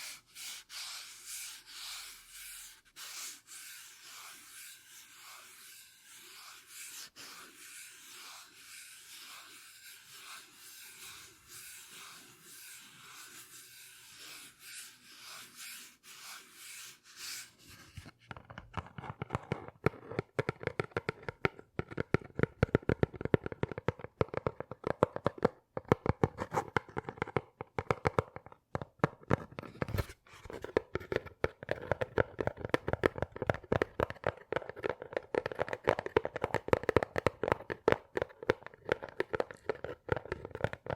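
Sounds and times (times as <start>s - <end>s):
soft rubbing strokes: 0.0s - 18.1s.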